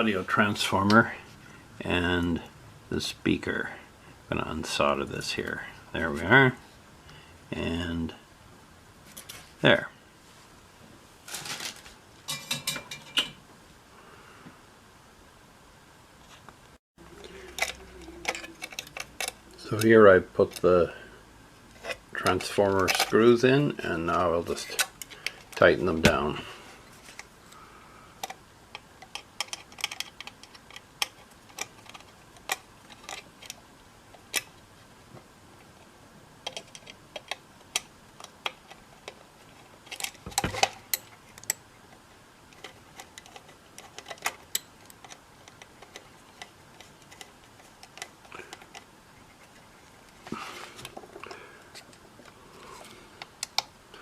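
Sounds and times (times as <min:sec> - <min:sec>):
screwdriver clicking on metal: 0:17.5 - 0:19.9.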